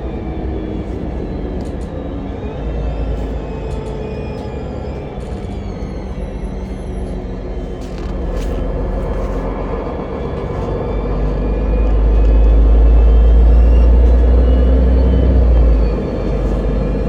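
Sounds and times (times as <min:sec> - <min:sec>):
vehicle ride rumble: 0:00.0 - 0:17.0.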